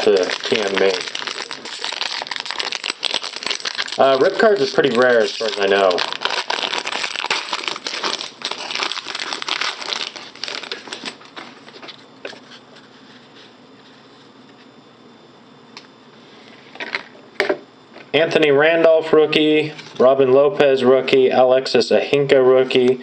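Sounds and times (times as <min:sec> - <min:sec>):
card pack wrapper crinkling: 0:00.0 - 0:11.8.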